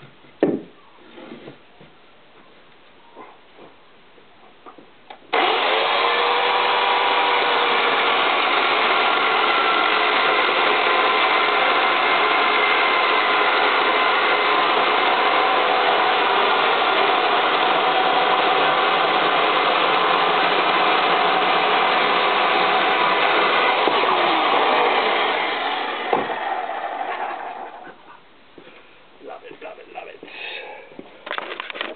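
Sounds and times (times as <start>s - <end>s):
chainsaw running: 5.3s - 27.9s.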